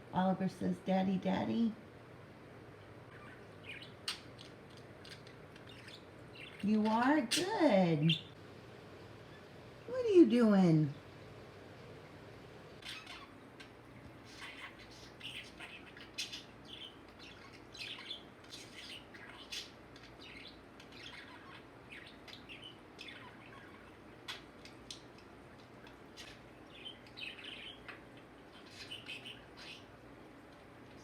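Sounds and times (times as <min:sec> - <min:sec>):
budgerigar chirping and warbling: 0:03.1 - 0:08.4, 0:12.8 - 0:13.7, 0:14.3 - 0:24.5, 0:26.2 - 0:30.0.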